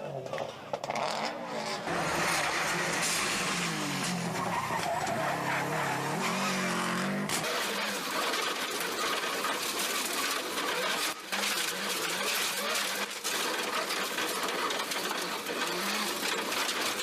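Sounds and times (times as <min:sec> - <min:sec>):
faint rally car engine: 0:00.0 - 0:17.0
stones rattling on car: 0:07.0 - 0:17.0.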